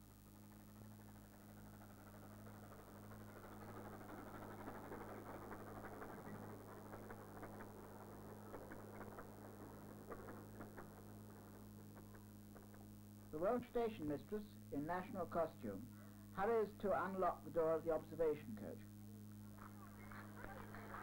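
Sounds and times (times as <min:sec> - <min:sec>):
wheels clicking on track: 0:00.0 - 0:14.0
electrical hum: 0:00.0 - 0:21.0
train rumbling past: 0:00.8 - 0:12.2.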